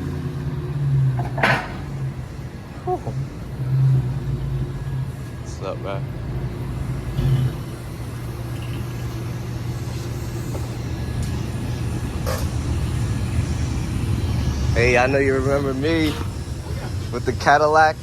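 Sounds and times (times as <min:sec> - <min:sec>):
car engine deep rumble: 0:00.0 - 0:18.0.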